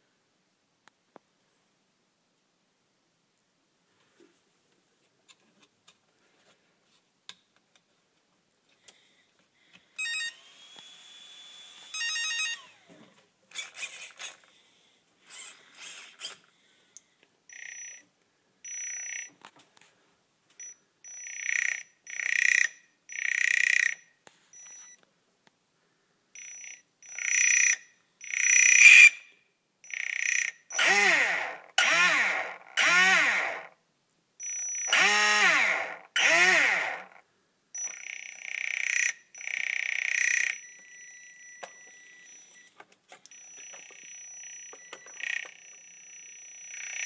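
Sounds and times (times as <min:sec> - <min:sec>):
electric motor whining in bursts: 0:10.3 - 0:12.9, 0:30.7 - 0:33.7, 0:34.9 - 0:37.1
electronic beeps: 0:11.7 - 0:12.8, 0:17.5 - 0:18.0, 0:18.7 - 0:19.3, 0:20.6 - 0:24.0, 0:24.6 - 0:25.0, 0:37.8 - 0:47.0.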